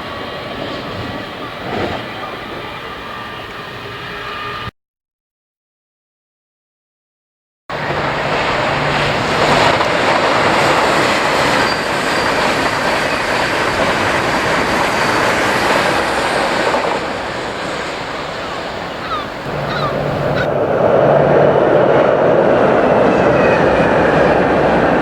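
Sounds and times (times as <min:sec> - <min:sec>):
train wheels rushing on rails: 0:00.0 - 0:04.7, 0:07.7 - 0:25.0
high wheel squeal: 0:10.6 - 0:21.3.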